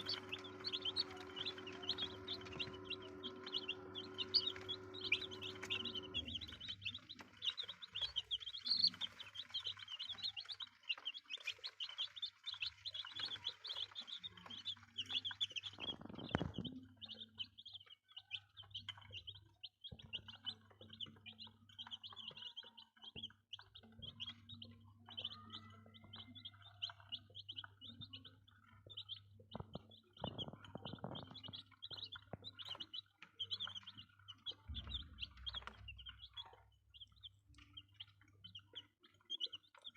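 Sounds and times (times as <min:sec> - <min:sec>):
steady low hum: 0:00.0 - 0:07.4
chicks peeping: 0:00.0 - 0:39.9.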